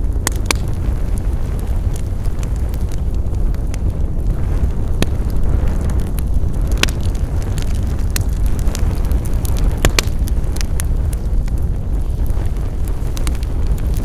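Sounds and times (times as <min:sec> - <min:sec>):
low rumble of flames: 0:00.0 - 0:14.0
wood fire crackling: 0:00.0 - 0:14.0.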